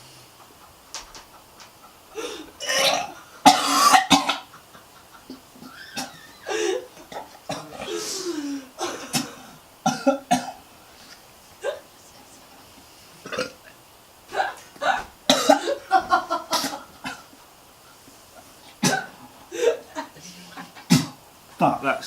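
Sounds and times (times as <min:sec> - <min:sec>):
man coughing and gagging: 0:02.6 - 0:04.5, 0:08.8 - 0:10.6, 0:14.3 - 0:15.8, 0:16.5 - 0:17.2, 0:18.8 - 0:19.8.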